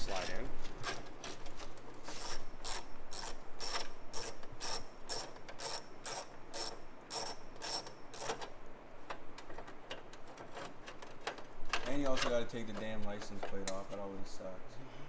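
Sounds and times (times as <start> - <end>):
ratchet wrench clicking: 0.0 - 1.5, 2.1 - 8.5.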